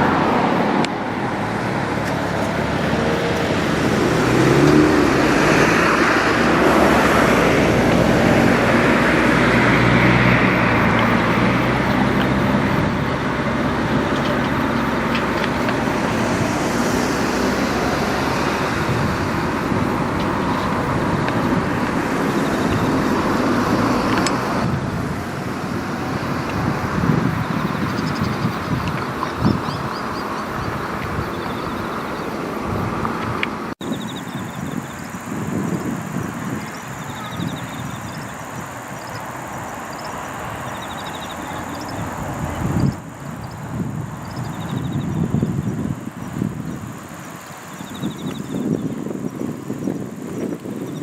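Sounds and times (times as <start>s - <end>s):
tyres rushing: 0.0s - 33.8s
car engines humming: 0.0s - 51.0s.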